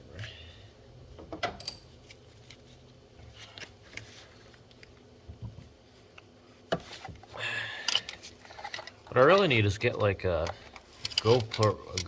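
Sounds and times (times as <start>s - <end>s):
small parts being handled: 7.8s - 12.0s.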